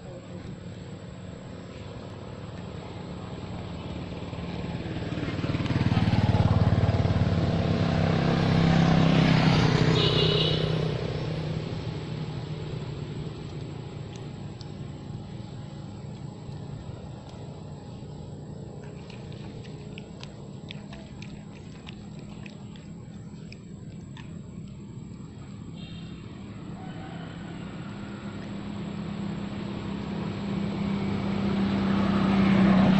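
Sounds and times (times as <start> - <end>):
low steady hum: 0.0 - 9.1, 11.0 - 32.9
vehicle engine passing by: 0.0 - 32.9
faint scattered ticks: 12.8 - 26.3.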